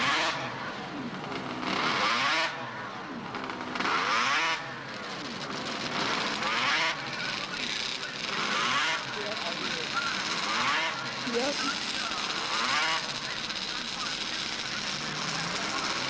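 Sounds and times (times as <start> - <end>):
snowmobile engines revving: 0.0 - 16.0.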